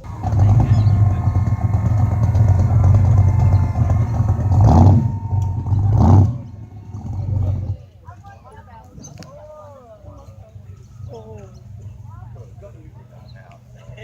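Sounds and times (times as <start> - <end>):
car engine revving: 0.0 - 7.8
car engine rumbling: 0.0 - 8.1.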